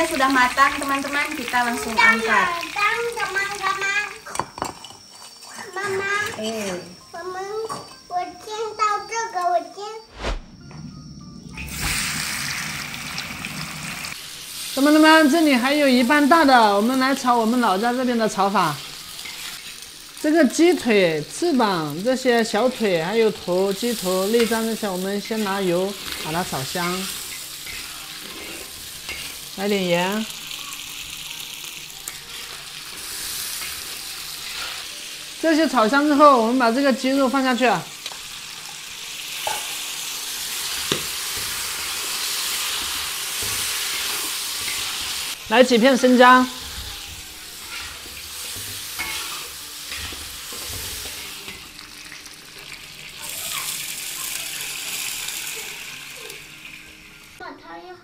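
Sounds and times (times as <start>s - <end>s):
chicken sizzling in hot oil: 0.0s - 7.6s, 11.6s - 57.4s
water poured into wok: 11.6s - 14.8s
metal spatula scraping wok: 22.6s - 29.6s, 32.0s - 35.4s, 39.4s - 51.6s.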